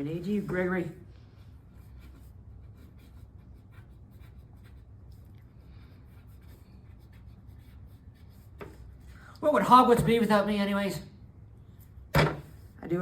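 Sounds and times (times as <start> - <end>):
low steady hum: 0.0 - 13.0
pen scratching on paper: 1.5 - 5.0, 5.6 - 9.0.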